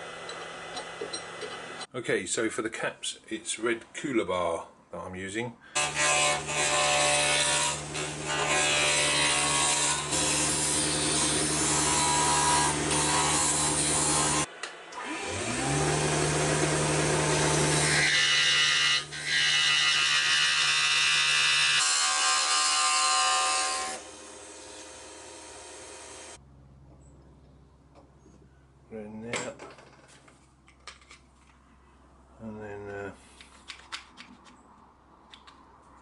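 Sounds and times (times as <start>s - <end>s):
rasping wood cutting: 5.8s - 26.4s
woodworking machine motor humming: 9.8s - 18.5s.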